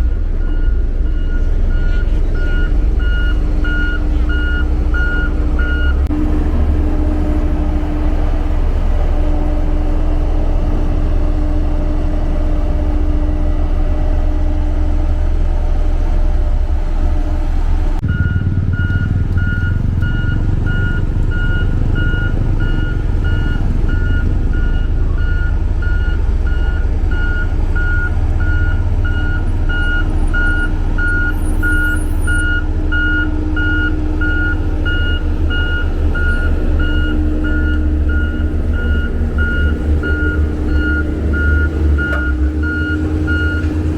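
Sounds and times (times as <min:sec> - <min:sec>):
reversing alarm beeping: 0:00.0 - 0:06.1, 0:18.0 - 0:43.8
diesel engine running: 0:00.0 - 0:43.9.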